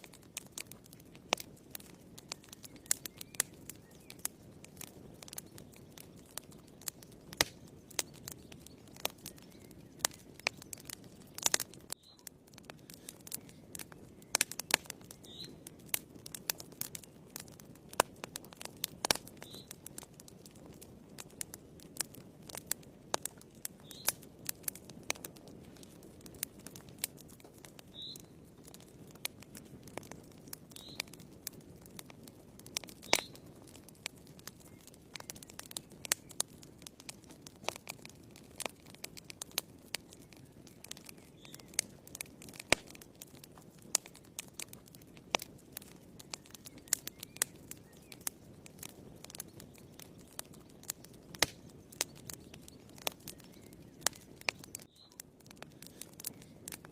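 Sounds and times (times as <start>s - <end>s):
fire crackling and popping: 0.0s - 56.9s
low rush of flames: 0.0s - 56.9s.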